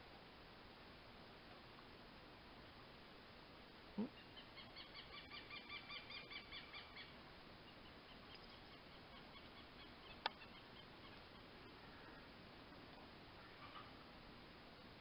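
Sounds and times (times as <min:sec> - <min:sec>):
bird chirping: 0:04.0 - 0:12.3.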